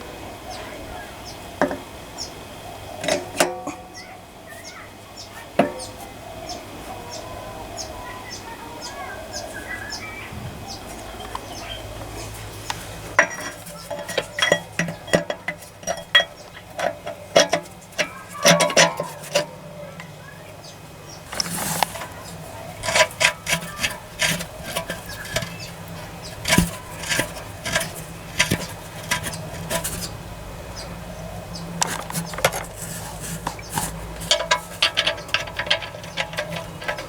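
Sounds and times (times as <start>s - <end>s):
metal tools clinking: 13.2s - 20.1s, 21.3s - 30.1s, 31.8s - 37.0s.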